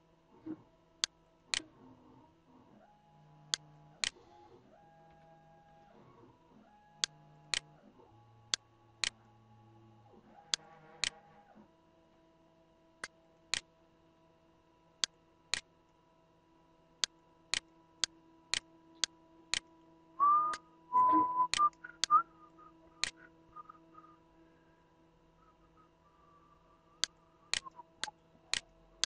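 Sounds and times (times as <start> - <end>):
faint steady tones: 0.0 - 29.0
brief rising tone: 20.2 - 22.7
sharp regular ticking: 27.0 - 28.7.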